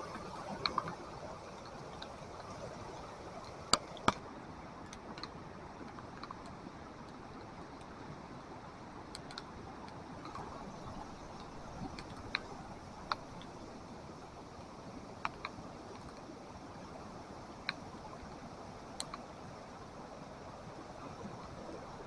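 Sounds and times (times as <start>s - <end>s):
creek water rushing: 0.0s - 22.0s
faint ticks: 0.2s - 4.2s, 9.1s - 13.8s, 15.2s - 16.3s, 18.9s - 19.3s.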